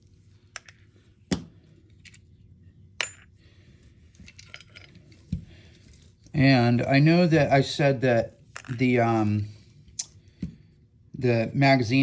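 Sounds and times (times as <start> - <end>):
metal tools clinking: 4.2 - 5.2.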